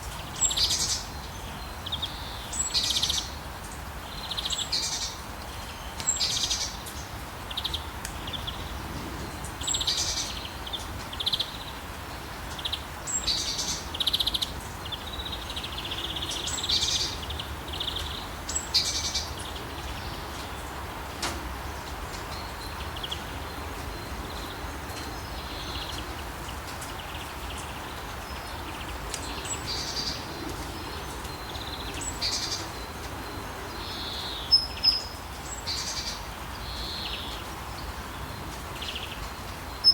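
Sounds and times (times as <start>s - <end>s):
steady rain hiss: 0.0s - 39.9s
birds chirping and calling: 21.9s - 39.9s.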